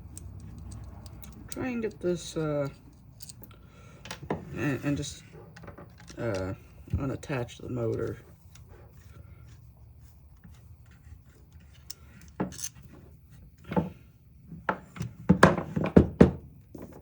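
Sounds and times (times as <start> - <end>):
metal and plastic parts clicking: 0.1 - 2.0, 5.6 - 8.7.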